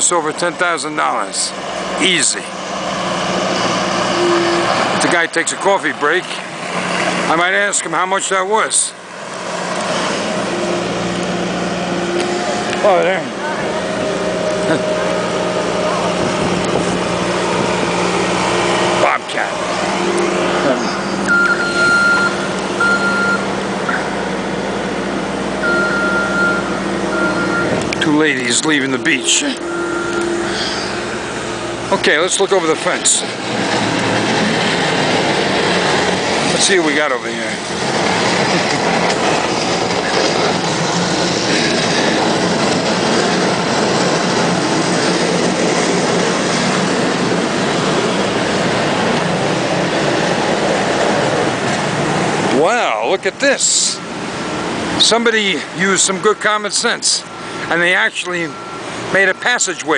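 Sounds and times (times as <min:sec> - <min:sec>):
diesel engine running: 0:00.0 - 0:59.9
backup alarm tone: 0:21.0 - 0:24.0, 0:25.6 - 0:27.8, 0:29.1 - 0:31.6, 0:56.1 - 0:59.9.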